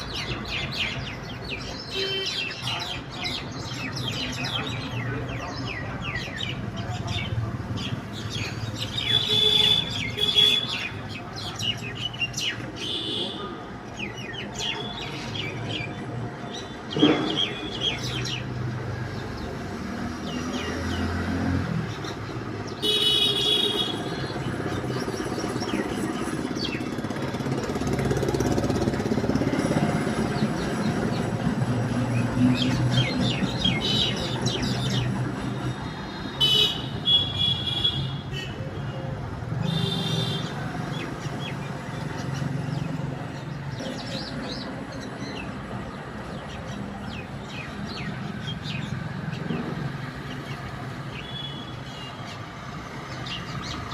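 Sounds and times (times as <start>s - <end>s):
street traffic: 0.0s - 53.9s
vehicle horns tooting: 9.1s - 10.8s, 22.8s - 24.1s, 36.4s - 38.7s.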